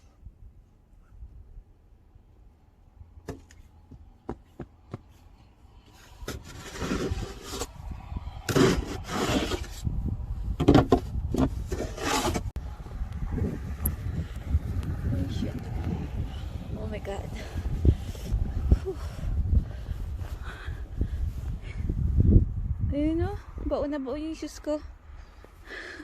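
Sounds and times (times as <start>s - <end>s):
wind rumble on microphone: 5.4s - 25.8s.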